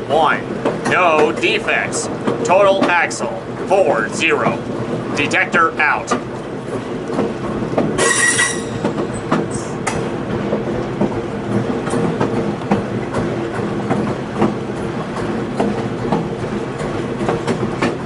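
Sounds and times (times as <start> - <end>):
train rumble and hum: 0.0 - 18.0
train wheels clicking over rail joints: 0.0 - 18.0
high-pitched squeal: 8.0 - 8.8.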